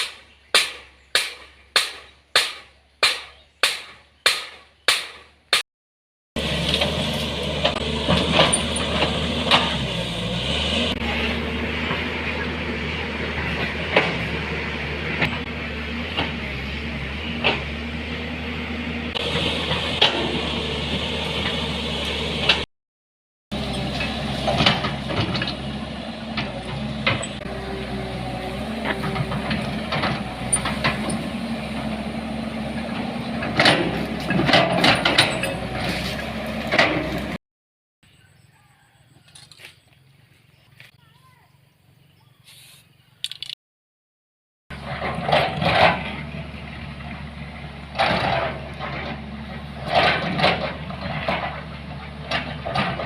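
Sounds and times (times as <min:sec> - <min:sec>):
vehicle engine running: 0:06.4 - 0:22.7, 0:23.5 - 0:37.4, 0:44.7 - 0:53.0
knocks and rattles: 0:32.8 - 0:36.0.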